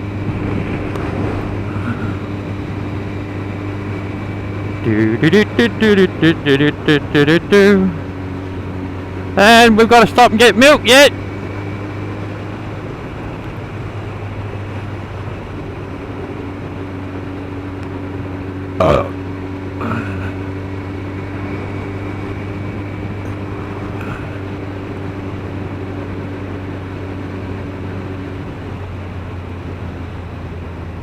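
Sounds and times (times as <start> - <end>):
motorcycle engine droning: 0.0 - 31.0.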